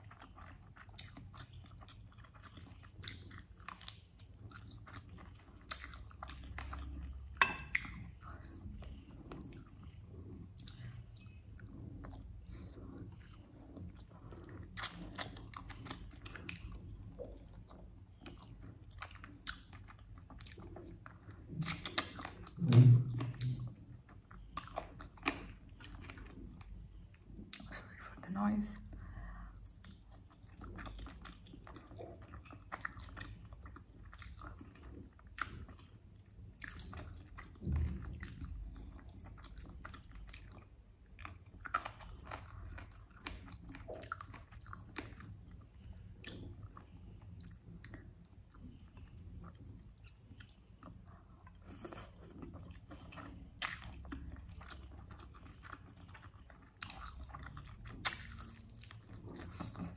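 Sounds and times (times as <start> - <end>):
person chewing and biting: 29.6 - 59.9.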